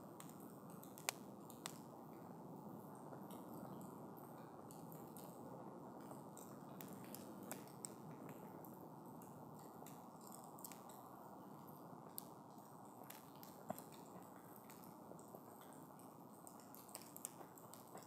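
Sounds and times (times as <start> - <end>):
campfire crackling and popping: 0.1 - 2.3, 6.1 - 8.4, 9.2 - 11.0, 12.0 - 18.0.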